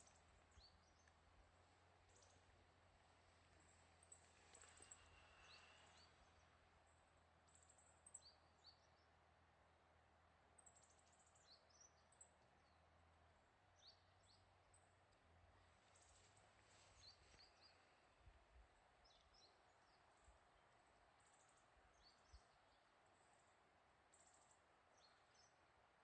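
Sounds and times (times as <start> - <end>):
small birds chirping: 0.0 - 9.2, 15.6 - 18.2
faint steady hiss: 0.0 - 26.0.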